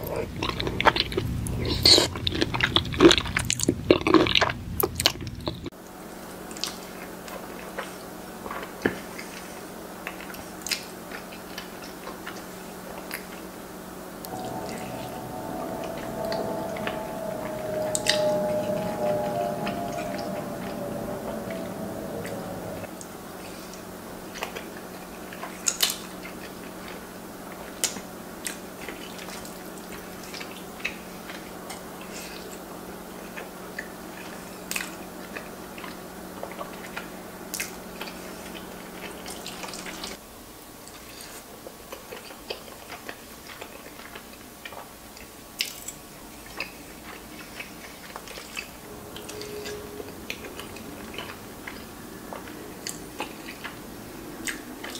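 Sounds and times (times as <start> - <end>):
steady low hum: 14.2 - 23.3.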